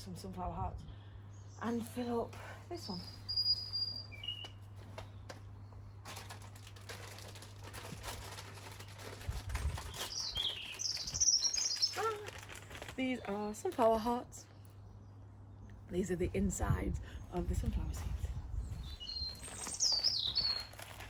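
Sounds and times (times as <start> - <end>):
small birds chirping: 0.0 - 6.7, 8.3 - 21.0
rustling: 6.0 - 13.9, 19.3 - 21.0.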